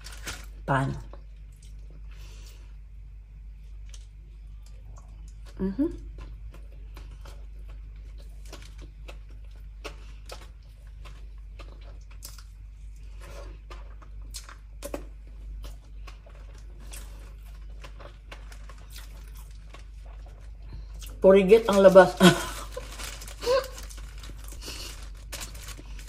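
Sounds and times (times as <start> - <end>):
plastic wrapper rustling: 0.0 - 1.0, 16.3 - 26.0
steady low hum: 0.0 - 26.0
person chewing: 3.7 - 21.2.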